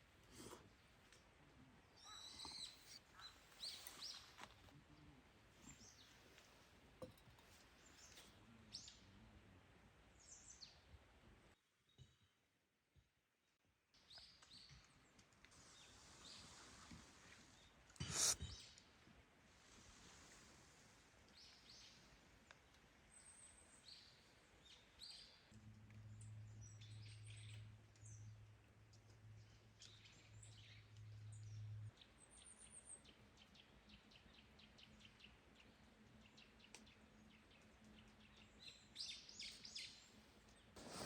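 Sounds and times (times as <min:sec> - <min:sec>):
forest ambience: 0:00.0 - 0:09.1, 0:14.4 - 0:41.0
bird chirps: 0:02.0 - 0:04.4.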